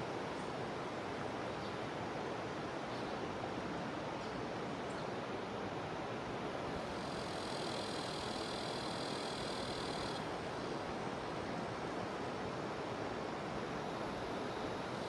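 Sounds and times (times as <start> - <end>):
cicadas buzzing: 6.4 - 10.9, 13.4 - 15.0.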